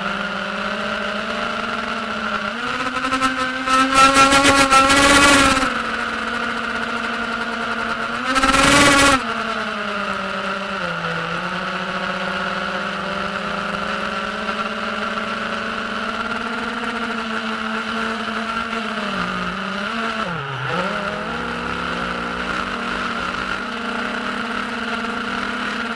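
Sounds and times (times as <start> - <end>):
quadcopter motors whining: 0.0 - 25.9.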